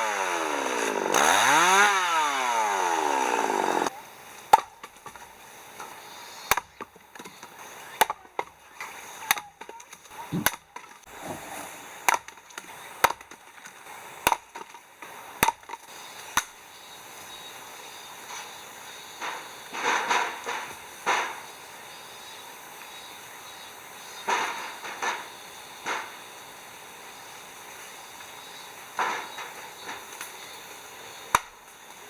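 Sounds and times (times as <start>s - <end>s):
axe chopping wood: 14.2s - 14.8s, 15.4s - 15.8s.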